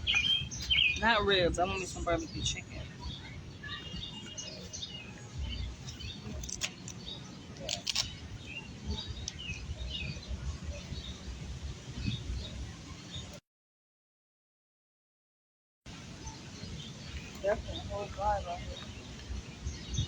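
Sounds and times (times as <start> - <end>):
small birds chirping: 0.0 - 13.4, 15.9 - 20.0.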